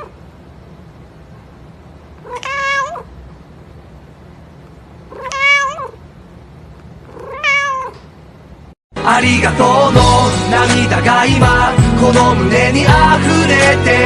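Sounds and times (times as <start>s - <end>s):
cat meowing: 2.2s - 3.1s, 5.1s - 6.0s, 7.1s - 8.0s.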